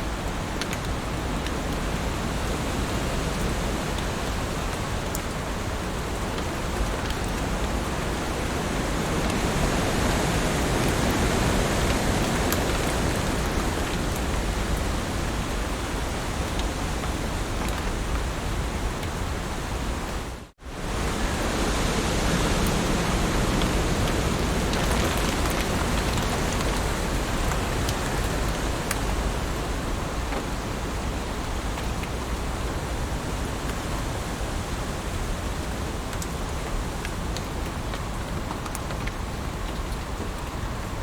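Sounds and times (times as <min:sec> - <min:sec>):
heavy rain falling: 0:00.0 - 0:41.0.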